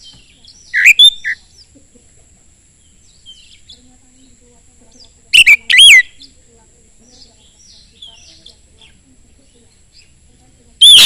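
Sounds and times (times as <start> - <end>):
loud whistled bird notes: 0.0 - 1.4, 5.3 - 6.3, 10.8 - 11.0
soft bird chirps and warbling: 0.0 - 11.0.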